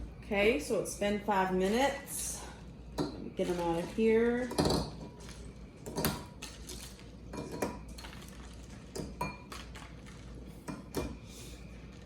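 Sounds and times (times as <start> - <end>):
eggs clinking against a bowl: 3.0 - 9.8.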